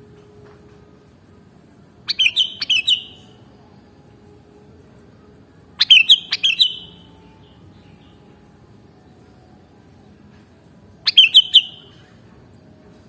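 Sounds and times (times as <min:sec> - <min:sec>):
bird singing whistled notes: 0:02.1 - 0:03.4, 0:05.8 - 0:08.3, 0:11.0 - 0:12.0.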